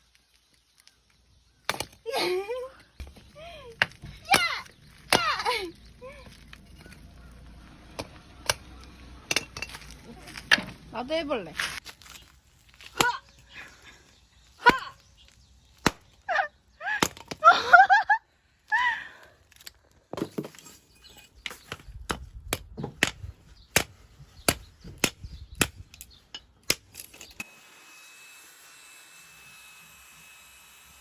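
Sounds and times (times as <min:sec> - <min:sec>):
wood chopping strikes: 0:01.6 - 0:02.0, 0:03.0 - 0:05.6, 0:07.9 - 0:10.9, 0:15.8 - 0:16.2.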